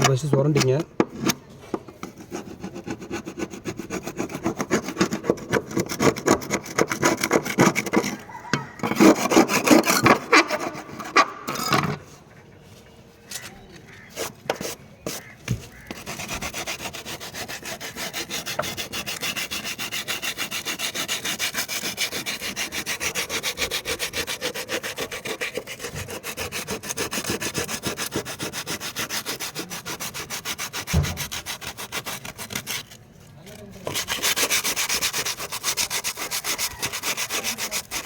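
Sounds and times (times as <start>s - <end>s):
hand scraping cement roof sheet: 0.0s - 38.0s
short knocks: 30.9s - 31.3s.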